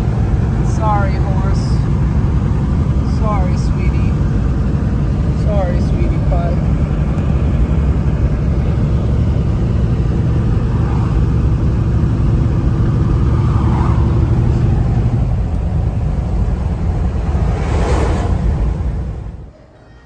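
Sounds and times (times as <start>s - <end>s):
truck engine and road rumble: 0.0s - 19.6s
rushing whoosh: 7.7s - 19.5s.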